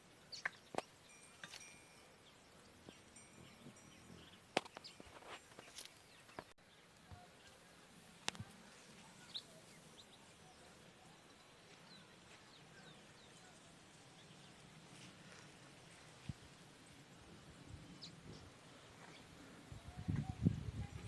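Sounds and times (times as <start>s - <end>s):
faint bird chirps: 0.0s - 14.8s.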